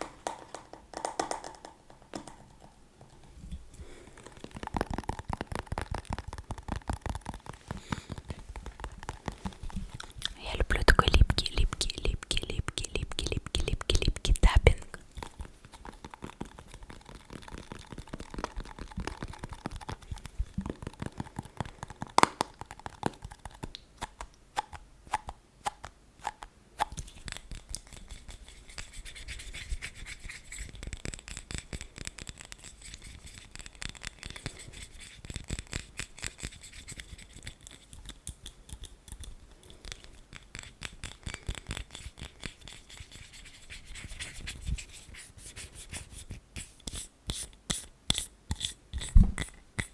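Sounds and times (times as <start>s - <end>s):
rapid tapping and scratching: 4.2s - 23.8s.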